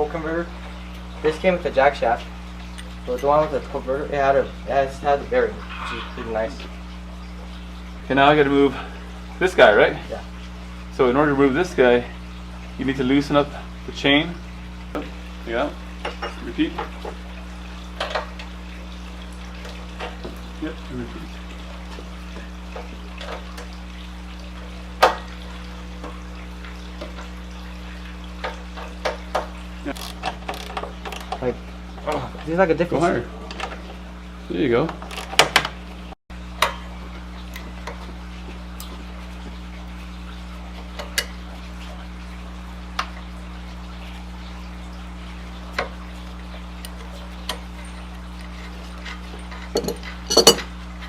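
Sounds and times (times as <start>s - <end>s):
steady low hum: 0.0s - 30.0s
metal parts knocking and clattering: 49.1s - 50.7s.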